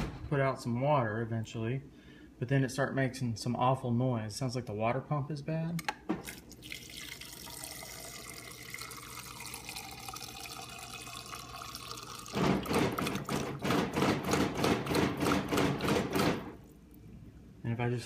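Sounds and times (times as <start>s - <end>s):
water running from dispenser: 6.2s - 13.6s.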